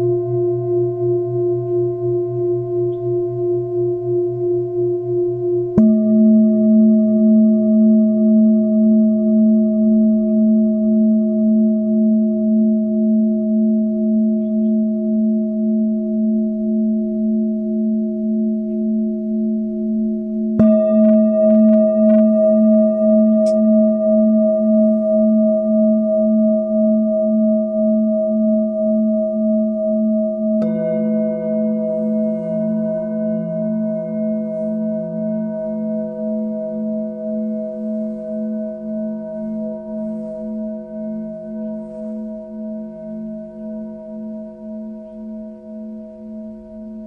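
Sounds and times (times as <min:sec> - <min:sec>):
singing bowl ringing: 0:00.0 - 0:47.0
singing bowl struck: 0:00.0 - 0:47.0.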